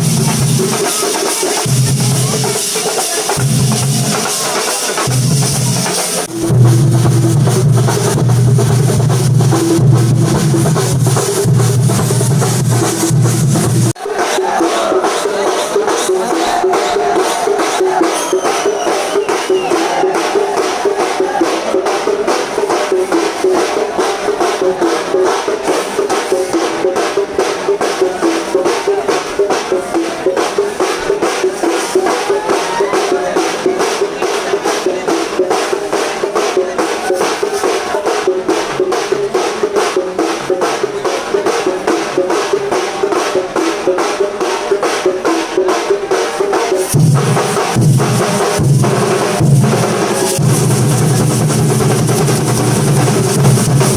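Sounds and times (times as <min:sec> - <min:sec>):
heavy bass drum beats: 0:00.0 - 0:44.7, 0:45.5 - 0:53.9
cymbals: 0:00.0 - 0:53.9
fast dense drumming: 0:00.0 - 0:53.9.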